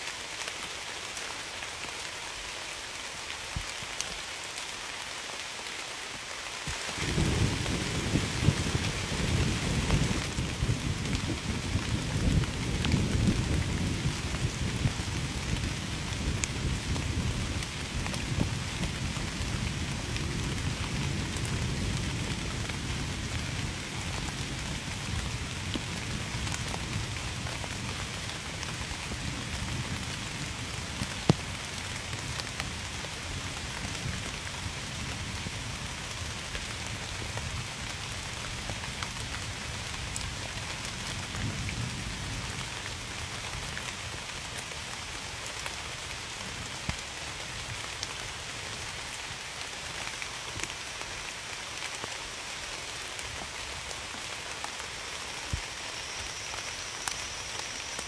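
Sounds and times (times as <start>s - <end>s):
heavy rain falling: 0.0s - 58.0s
low thunder rumble: 7.0s - 27.4s.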